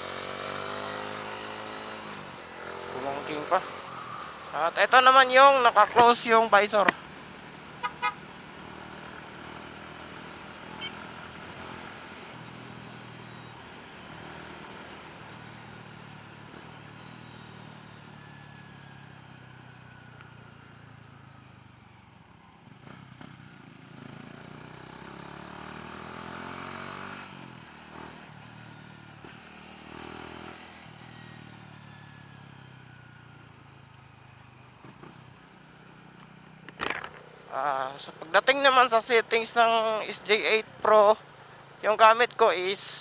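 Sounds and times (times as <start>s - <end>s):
motorcycle engine accelerating: 0.0s - 4.4s, 22.7s - 33.6s
wind and road noise: 0.0s - 43.0s.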